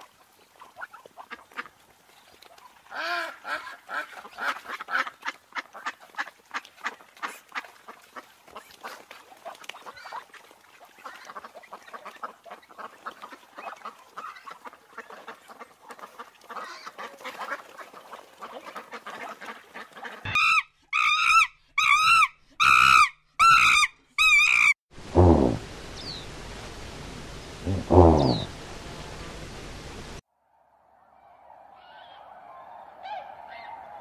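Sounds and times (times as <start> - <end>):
ducks quacking: 2.9 - 10.3, 11.0 - 20.6, 27.7 - 28.6
loud honking calls: 27.7 - 28.6.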